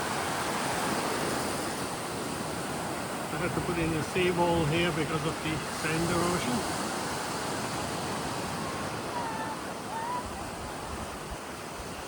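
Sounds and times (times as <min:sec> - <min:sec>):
ocean surf: 0:00.0 - 0:12.0
wind: 0:00.0 - 0:12.0.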